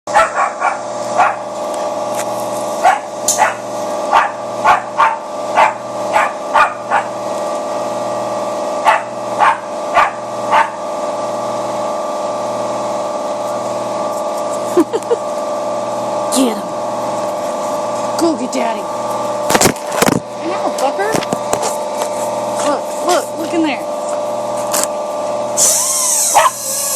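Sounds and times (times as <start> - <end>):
puppy barking: 0.1 - 1.5, 2.8 - 7.2, 8.8 - 10.8, 26.3 - 26.7
power tool whining: 0.8 - 26.9.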